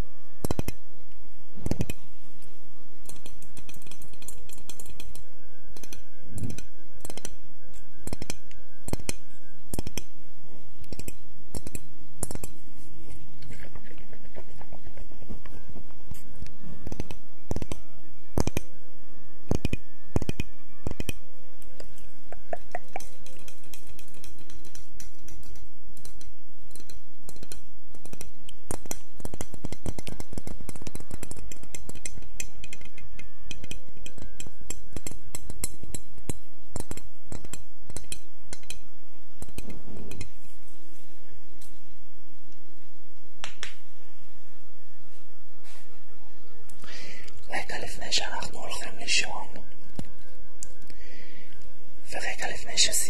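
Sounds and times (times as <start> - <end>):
small sharp tapping and clicking: 0.4 - 0.8, 1.6 - 2.1, 3.0 - 10.2, 10.8 - 12.6, 13.4 - 18.8, 19.5 - 40.4.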